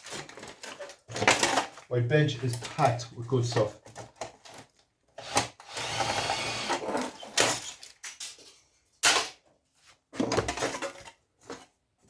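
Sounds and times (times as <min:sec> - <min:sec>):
hard parts clattering: 0:00.0 - 0:04.7, 0:10.2 - 0:11.6.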